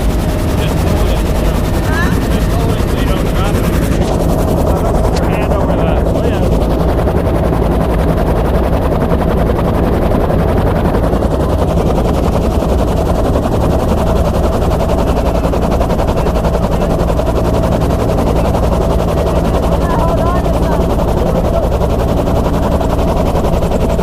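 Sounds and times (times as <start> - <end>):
helicopter rotor chopping: 0.0 - 24.0
turbine whine: 0.0 - 24.0.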